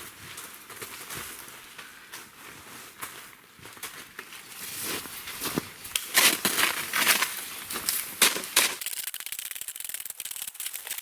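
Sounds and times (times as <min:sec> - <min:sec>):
crunching in packed snow: 0:04.3 - 0:08.8.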